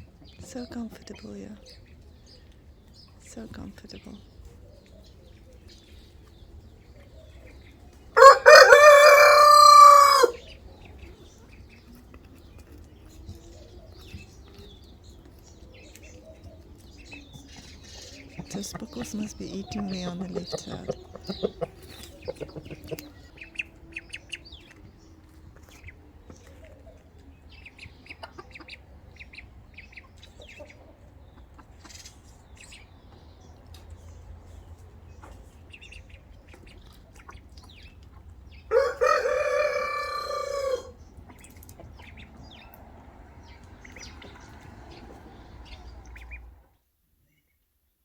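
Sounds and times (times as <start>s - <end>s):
chickens clucking: 0.0s - 46.6s
rooster crowing: 8.2s - 10.4s, 38.7s - 41.0s.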